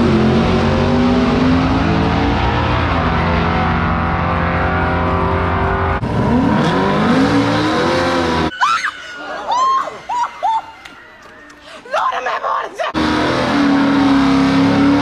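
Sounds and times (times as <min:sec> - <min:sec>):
car engine revving: 0:00.0 - 0:08.5, 0:12.9 - 0:15.0.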